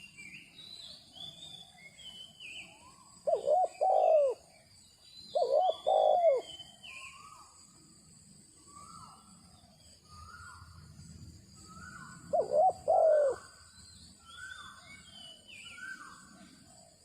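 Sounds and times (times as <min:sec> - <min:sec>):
small birds chirping: 0:00.0 - 0:17.0
dove cooing: 0:03.2 - 0:04.5, 0:05.3 - 0:06.7, 0:11.7 - 0:13.6.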